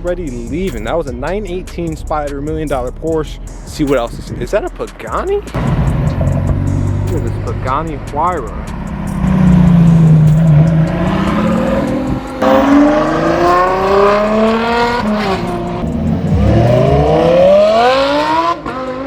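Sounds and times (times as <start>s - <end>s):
car engine accelerating: 5.5s - 19.0s.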